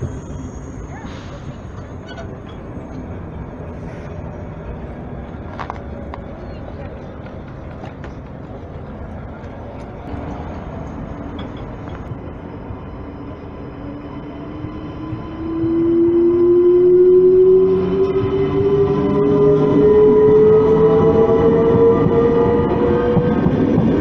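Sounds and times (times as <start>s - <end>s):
loud humming tone rising: 12.5s - 23.9s.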